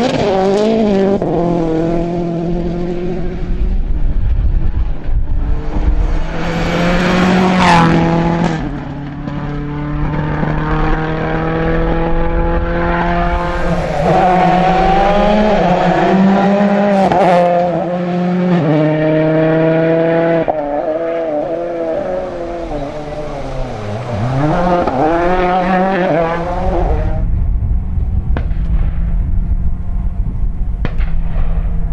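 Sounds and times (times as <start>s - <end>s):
gear changes: 0.0s - 18.0s, 18.8s - 31.9s
rally car engine revving: 0.0s - 31.9s.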